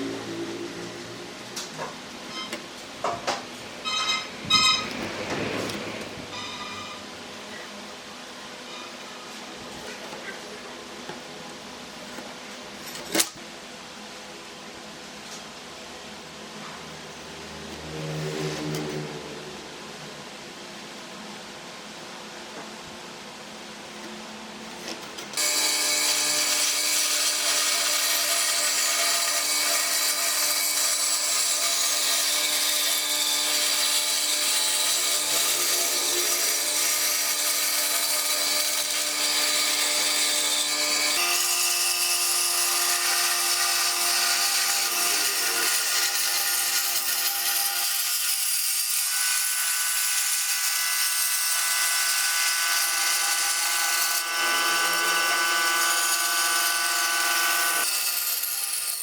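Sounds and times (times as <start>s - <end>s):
woodworking power tool whining: 0.0s - 7.8s, 24.7s - 59.0s.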